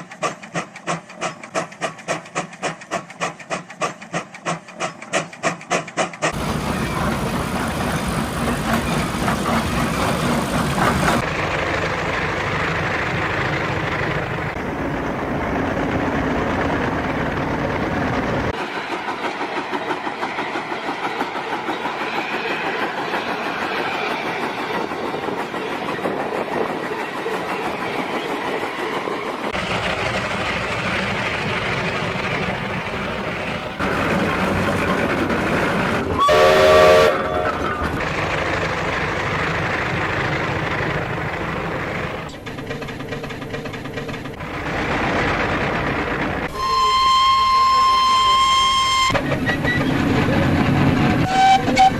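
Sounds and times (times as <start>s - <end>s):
steam engine exhaust beats: 29.5s - 37.3s
steam whistle blast: 36.2s - 37.6s, 46.5s - 49.2s, 51.2s - 51.9s.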